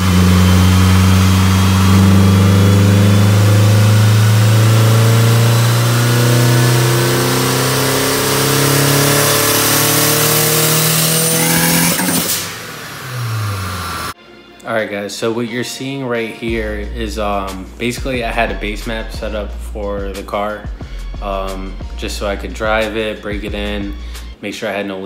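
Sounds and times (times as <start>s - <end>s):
car engine running under load: 0.0s - 14.2s
faint high turbo whine: 0.0s - 14.2s.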